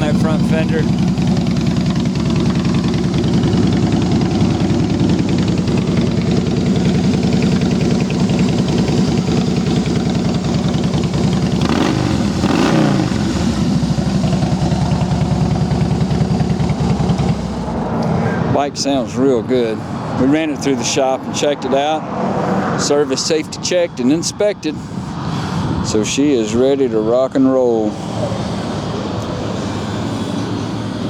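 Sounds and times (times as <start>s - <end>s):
motorcycle engine idling and revving: 0.0s - 31.0s.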